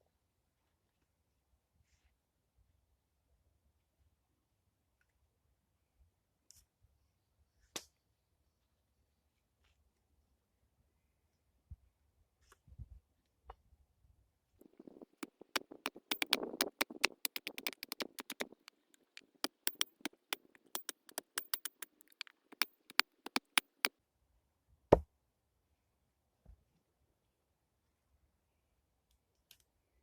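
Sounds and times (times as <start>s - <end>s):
lathe tool clicks and knocks: 14.6s - 23.9s.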